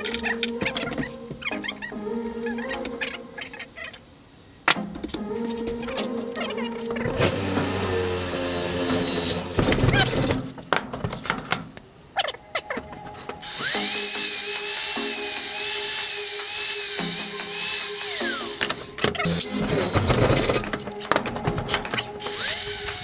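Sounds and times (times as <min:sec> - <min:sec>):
background music: 0:00.0 - 0:03.8, 0:04.6 - 0:10.5, 0:11.8 - 0:23.0
power drill whining: 0:07.2 - 0:10.4, 0:13.4 - 0:20.8, 0:22.2 - 0:23.0.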